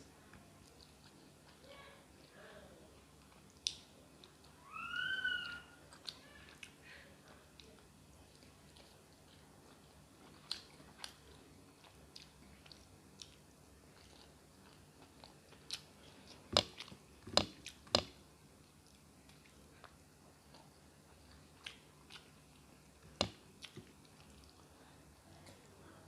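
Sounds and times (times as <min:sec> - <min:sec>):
person chewing wet clicks: 0:03.1 - 0:04.6, 0:05.9 - 0:24.7.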